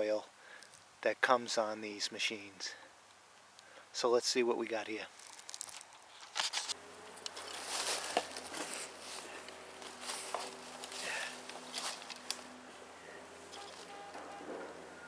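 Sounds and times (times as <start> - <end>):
faint low hum: 6.8 - 15.0.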